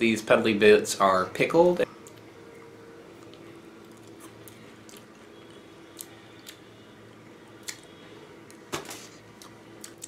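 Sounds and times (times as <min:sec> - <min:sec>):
person chewing crisp fruit: 0:01.9 - 0:06.8, 0:07.4 - 0:10.0.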